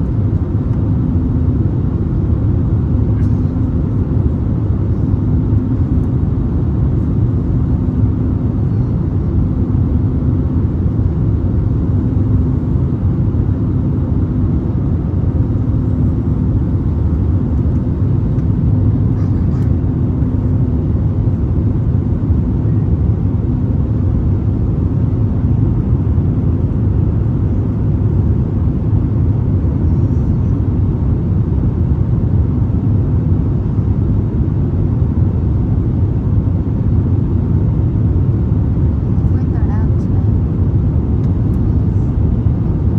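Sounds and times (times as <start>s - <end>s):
airliner cabin roar: 0.0s - 42.9s.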